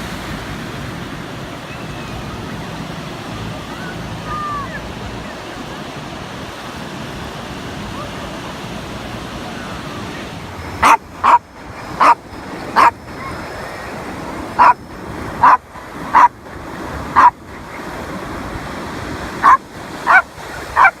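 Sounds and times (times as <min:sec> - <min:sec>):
dog barking: 0:10.8 - 0:13.0, 0:14.6 - 0:14.8, 0:15.4 - 0:16.3, 0:17.2 - 0:17.4, 0:19.4 - 0:21.0.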